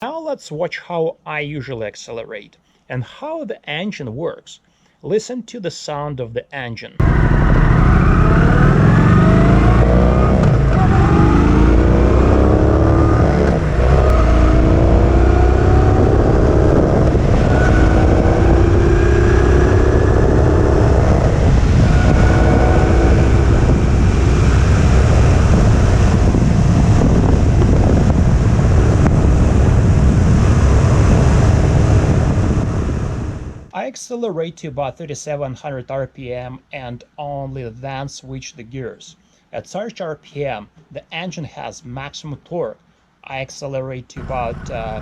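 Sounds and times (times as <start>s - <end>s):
motorcycle engine accelerating: 7.0s - 33.7s.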